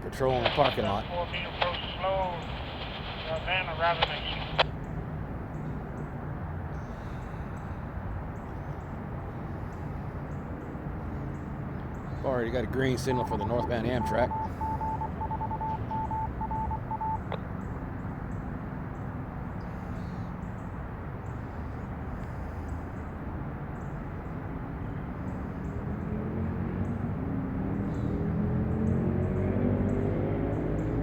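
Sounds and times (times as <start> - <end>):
steady low rumble: 0.0 - 4.8
pulsing beeping tone: 13.0 - 17.3.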